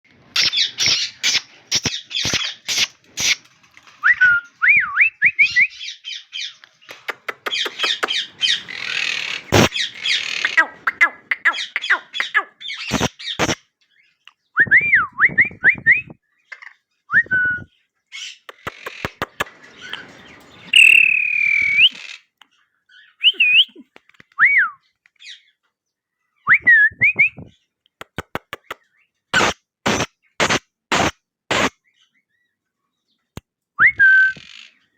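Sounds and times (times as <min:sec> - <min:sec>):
harsh scratchy bird chatter: 0:00.2 - 0:04.0, 0:06.1 - 0:13.7, 0:18.2 - 0:22.4, 0:27.4 - 0:28.8, 0:29.4 - 0:31.8
sharp bird clicks: 0:00.4 - 0:03.4, 0:06.6 - 0:08.7, 0:18.4 - 0:19.5, 0:20.8 - 0:22.6, 0:27.8 - 0:31.7
cockatiel whistling: 0:20.7 - 0:22.0, 0:23.2 - 0:23.8.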